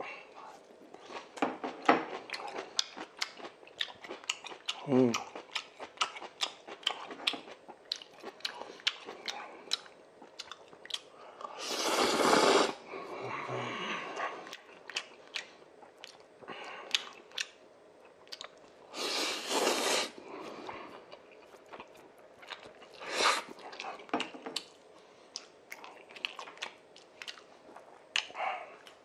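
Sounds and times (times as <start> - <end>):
wet chewing smacks and clicks: 2.1 - 11.5, 14.4 - 16.3, 16.9 - 17.6, 18.2 - 18.8, 21.1 - 29.0.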